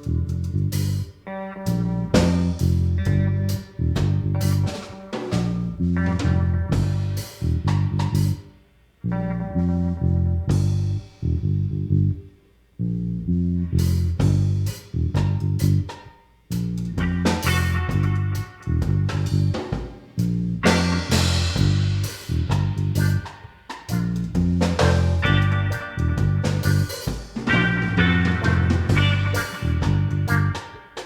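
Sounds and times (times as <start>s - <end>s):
bass guitar line: 0.0s - 31.0s
drums: 0.0s - 31.0s
guitar chords: 17.0s - 19.7s, 20.6s - 23.4s, 24.2s - 31.0s.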